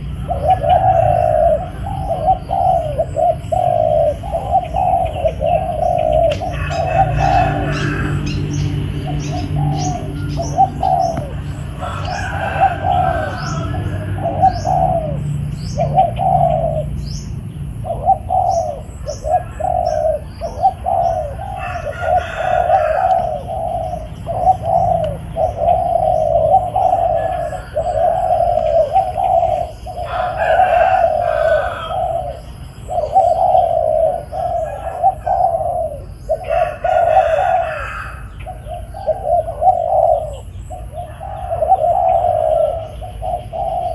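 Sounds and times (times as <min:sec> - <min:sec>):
doves cooing: 0:00.0 - 0:43.9
small birds chirping: 0:00.0 - 0:43.9.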